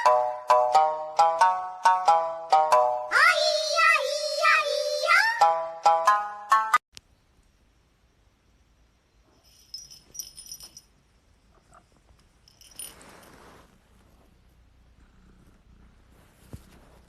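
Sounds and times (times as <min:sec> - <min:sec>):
soft rustle: 0:09.2 - 0:17.0
small bell jingling: 0:09.3 - 0:13.5.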